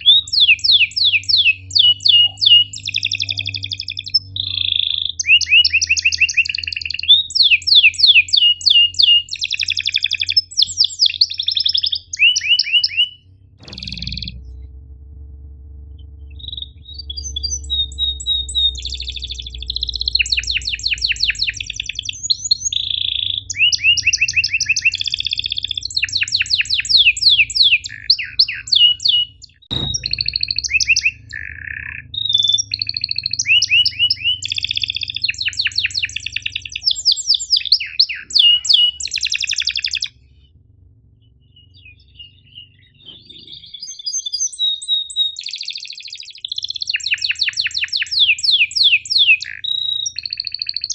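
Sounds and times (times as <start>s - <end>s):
canary singing: 0.0s - 14.6s, 16.0s - 50.9s
faint low hum: 0.0s - 45.4s
sharp click: 13.6s - 14.7s, 29.7s - 31.1s.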